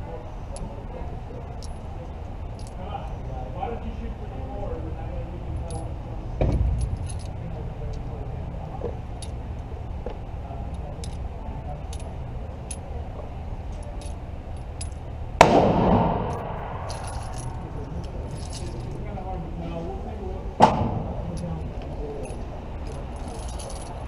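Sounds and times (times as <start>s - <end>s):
dull quiet bang: 6.4s - 7.0s
pistol shot echoing: 15.4s - 16.9s.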